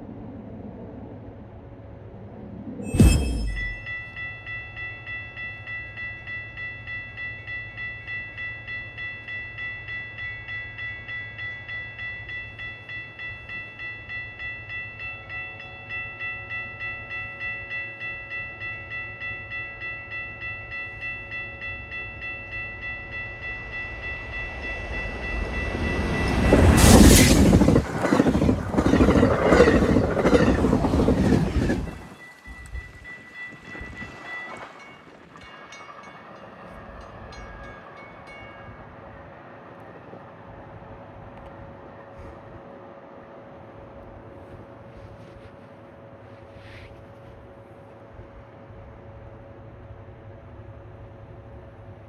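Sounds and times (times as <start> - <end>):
train passing at speed: 0.0 - 52.0
railroad crossing bell ringing: 2.8 - 40.8
wheels clattering over rail joints: 24.5 - 37.8.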